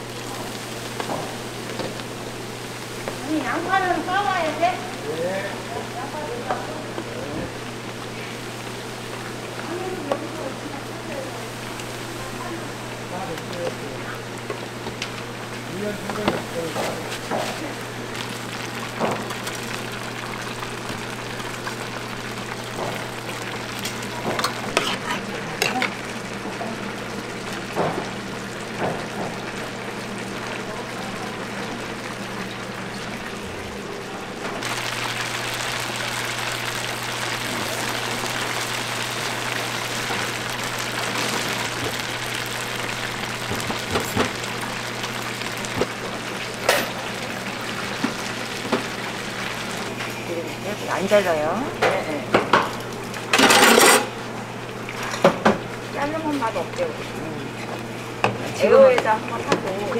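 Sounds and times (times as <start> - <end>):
food sizzling: 0.0 - 59.9
utensils clinking: 53.3 - 54.2.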